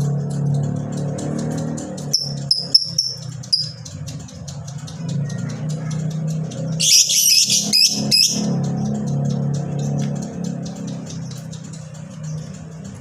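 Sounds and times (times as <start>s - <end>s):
bird harsh chattering: 1.2s - 13.0s
bird shrill chirps: 2.0s - 3.8s, 6.8s - 8.6s.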